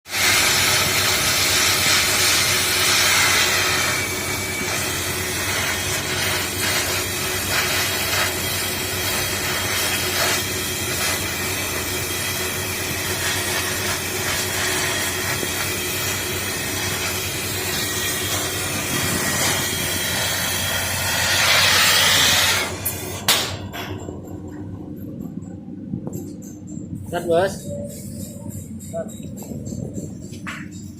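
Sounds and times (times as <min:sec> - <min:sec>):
loud raw engine exhaust: 0:00.2 - 0:23.0.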